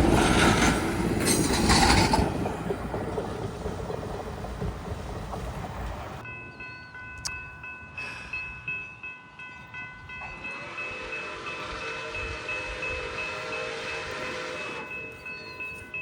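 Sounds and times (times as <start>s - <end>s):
train rumbling past: 0.0s - 16.0s
grade-crossing bell ringing: 6.2s - 16.0s.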